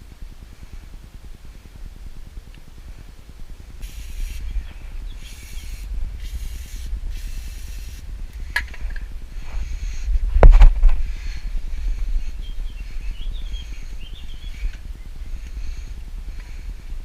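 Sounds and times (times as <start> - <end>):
low rumble: 0.0 - 17.0
aerosol spray can hissing: 3.8 - 8.1.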